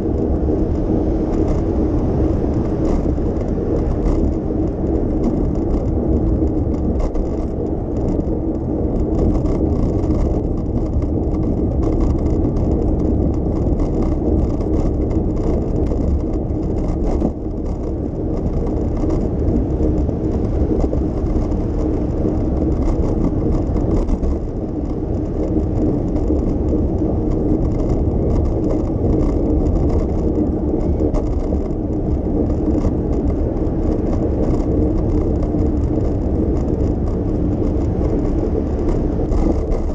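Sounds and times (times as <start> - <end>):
bicycle tyres rolling: 0.0 - 39.9
wind on microphone: 0.0 - 39.9.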